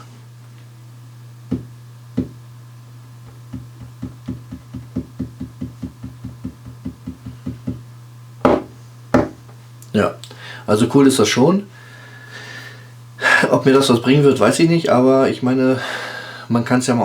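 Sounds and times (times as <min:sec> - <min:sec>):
steady low hum: 0:00.0 - 0:17.0
rapid knocking on hard surface: 0:01.5 - 0:02.4, 0:03.3 - 0:07.8, 0:08.4 - 0:09.4.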